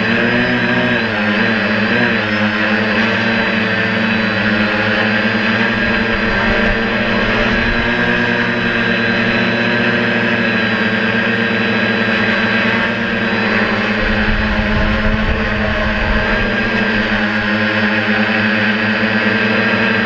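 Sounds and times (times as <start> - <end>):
drone propellers whirring: 0.0 - 20.0
wind rumbling on microphone: 2.8 - 10.2, 12.2 - 19.4.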